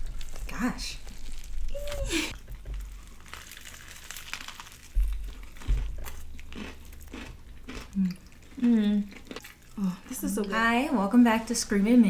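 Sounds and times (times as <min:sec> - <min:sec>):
food wrapping crinkling: 0:00.0 - 0:07.8.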